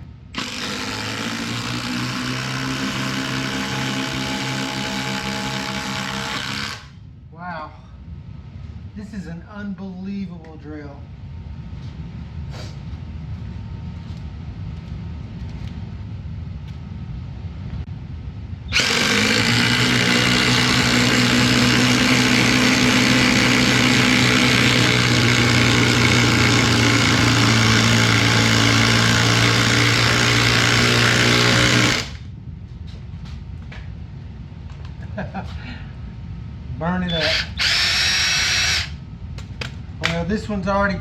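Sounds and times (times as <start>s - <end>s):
impact driver whining: 0.3s - 6.9s, 18.7s - 32.2s, 37.1s - 39.0s.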